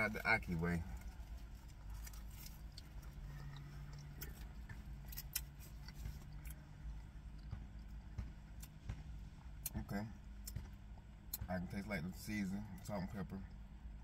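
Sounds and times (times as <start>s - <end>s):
faint low hum: 0.0s - 14.0s
person chewing: 1.0s - 8.8s.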